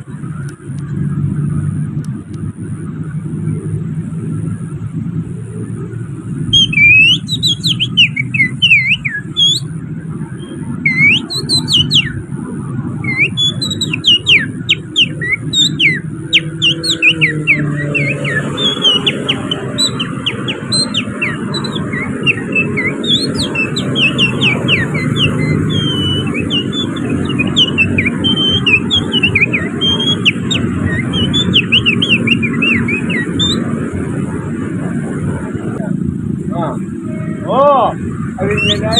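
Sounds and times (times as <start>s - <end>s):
low traffic rumble: 0.0s - 38.9s
person whistling bird-song: 6.5s - 9.7s, 10.8s - 12.2s, 13.0s - 33.6s, 38.5s - 38.9s.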